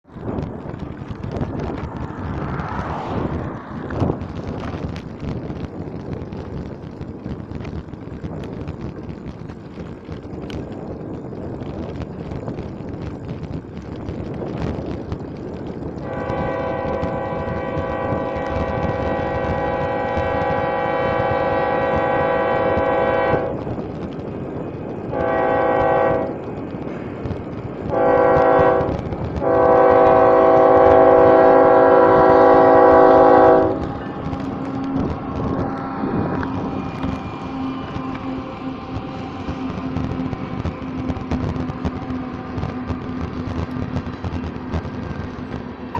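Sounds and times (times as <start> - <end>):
locomotive air horn blasts: 16.0 - 23.6, 25.1 - 26.4, 27.9 - 35.1.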